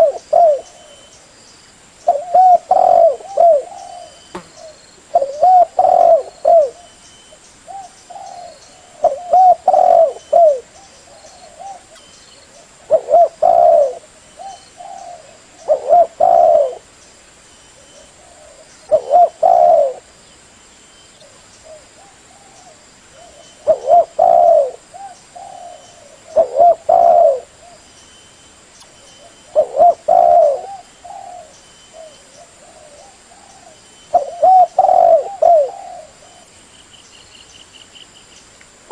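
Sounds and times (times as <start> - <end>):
dove cooing: 0.0 - 1.1, 2.1 - 7.0, 7.7 - 16.9, 17.8 - 20.1, 21.2 - 27.8, 29.2 - 36.5.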